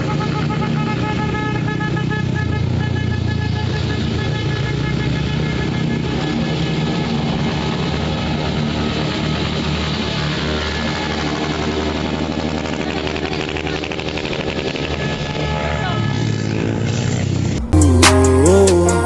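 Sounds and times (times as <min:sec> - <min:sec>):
motorcycle engine idling: 0:09.9 - 0:17.7.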